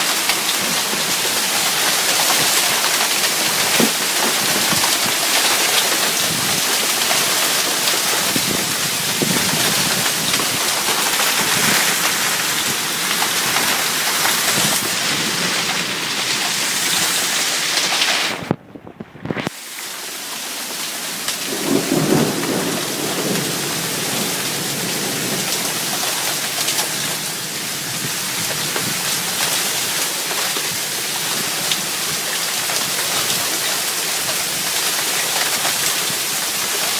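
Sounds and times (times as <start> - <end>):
heavy rain pouring: 0.0 - 36.9
low rumble of thunder: 0.7 - 16.5, 21.4 - 29.0.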